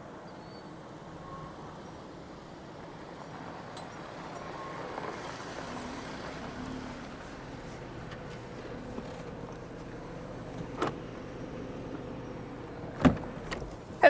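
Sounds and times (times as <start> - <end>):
car engine running: 5.0 - 14.0.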